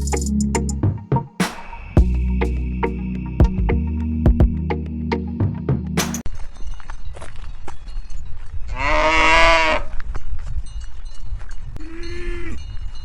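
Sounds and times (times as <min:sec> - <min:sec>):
low rumble: 0:02.0 - 0:06.2.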